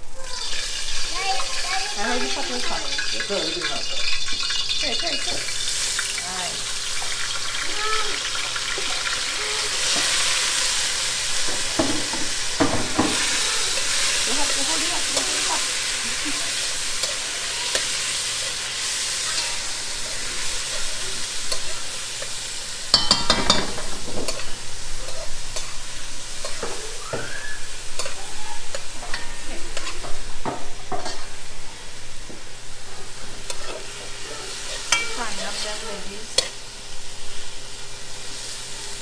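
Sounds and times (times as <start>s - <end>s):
sausage sizzling in oil: 0.0s - 39.0s
spoon scraping and stirring pot: 28.0s - 31.3s.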